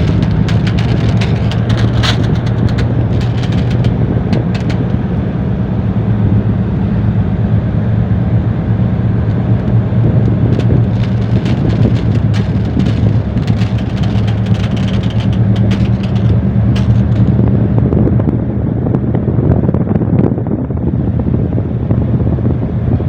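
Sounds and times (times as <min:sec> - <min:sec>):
brief crackles: 0:00.0 - 0:05.0, 0:09.3 - 0:17.6.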